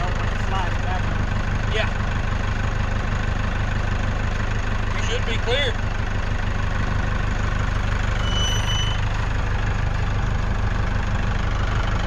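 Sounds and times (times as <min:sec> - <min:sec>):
tractor engine running: 0:00.0 - 0:12.0
high thin squeal: 0:08.0 - 0:09.1.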